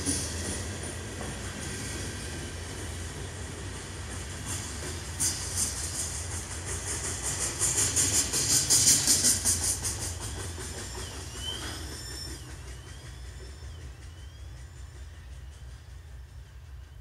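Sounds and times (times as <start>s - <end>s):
train hiss: 0.0s - 17.0s
train wheels clattering over rail joints: 0.0s - 17.0s
faint high wavering squeals: 10.0s - 17.0s.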